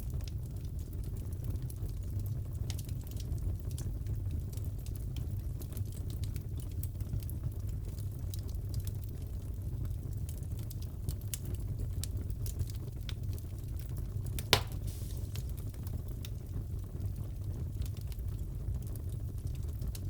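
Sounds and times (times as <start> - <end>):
wood fire crackling: 0.0 - 20.0
loud pop of fire: 14.4 - 15.9.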